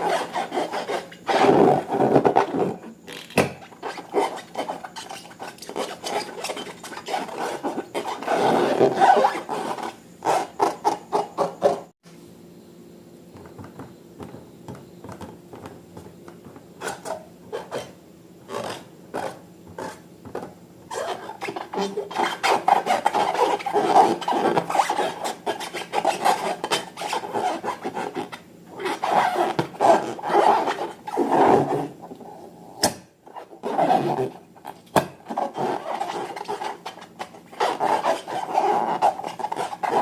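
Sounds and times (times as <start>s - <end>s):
faint steady hum: 0.0s - 40.0s
hands rubbing and scraping slime: 34.7s - 40.0s.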